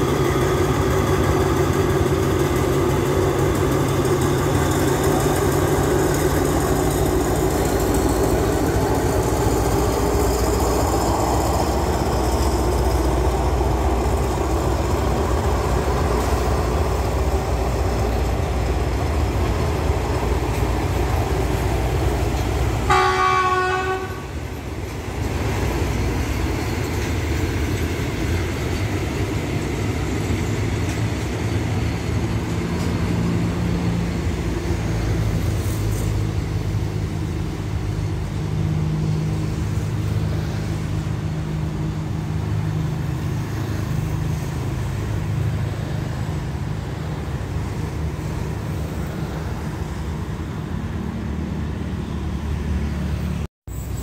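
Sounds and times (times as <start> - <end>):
train heavy rumble: 0.0 - 54.0
train horn blast: 22.8 - 24.4.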